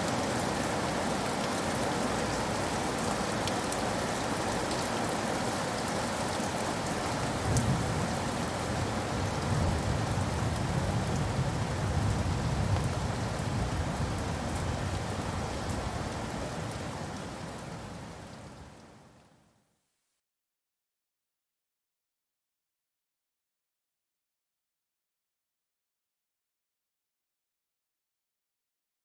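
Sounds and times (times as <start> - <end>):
heavy rain falling: 0.0 - 19.0
distant thunder rumbling: 7.3 - 15.2.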